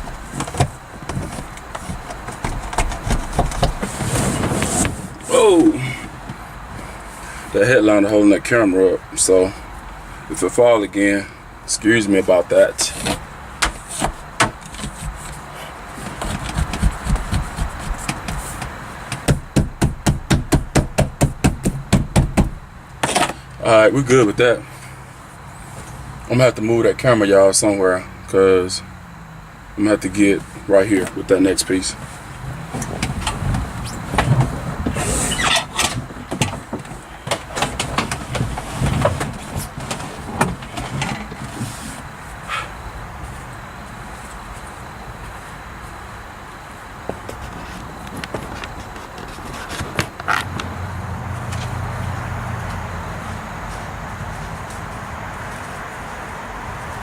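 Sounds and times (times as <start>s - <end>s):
rustling and scraping: 0.0s - 7.6s, 12.8s - 19.6s, 22.5s - 23.5s, 24.7s - 26.1s, 30.4s - 46.1s, 47.0s - 52.0s
sharp knocks on sheet metal: 19.1s - 22.6s.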